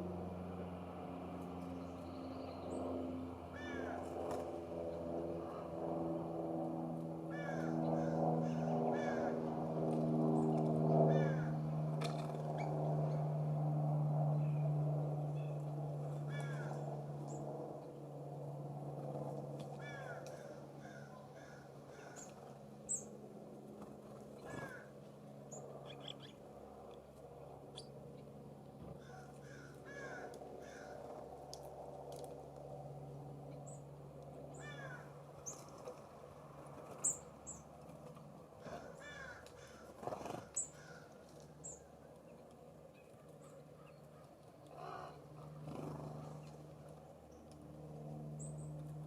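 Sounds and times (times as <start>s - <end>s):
steady low hum: 0.0s - 49.0s
wild birds calling: 3.5s - 4.2s, 7.3s - 9.8s, 10.4s - 13.3s, 15.3s - 17.4s, 19.7s - 23.2s, 24.2s - 26.5s, 28.9s - 31.2s, 34.5s - 35.8s, 38.6s - 41.9s, 42.9s - 46.6s.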